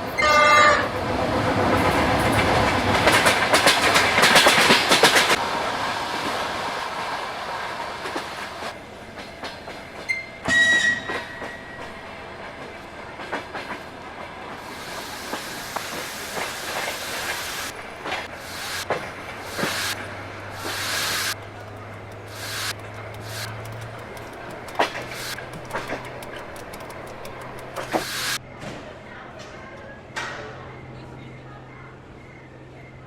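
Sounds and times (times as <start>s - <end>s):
train wheel clatter: 0.0s - 28.4s
train whistle blast: 0.2s - 0.9s, 10.4s - 11.5s.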